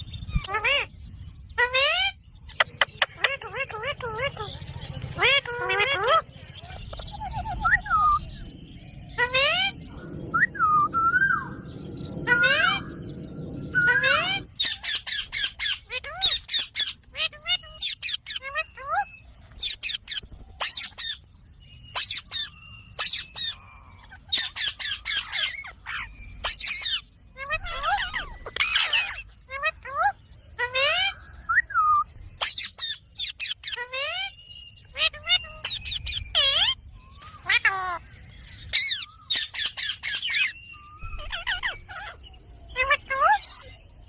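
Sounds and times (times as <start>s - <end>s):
parrot harsh high calls: 0.4s - 0.9s, 1.6s - 2.2s, 5.1s - 6.3s, 9.2s - 13.1s, 13.7s - 21.2s, 21.9s - 36.8s, 37.4s - 38.0s, 38.6s - 43.7s.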